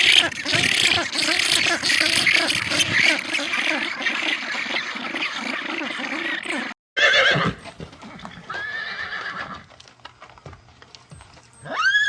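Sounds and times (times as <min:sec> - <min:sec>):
horse neighing: 0:05.6 - 0:09.7, 0:11.6 - 0:12.0.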